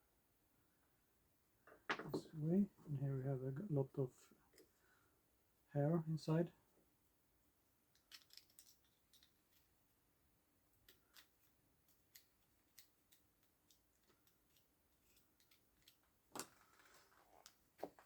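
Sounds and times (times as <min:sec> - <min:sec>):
small tools clicking: 0:07.9 - 0:09.7.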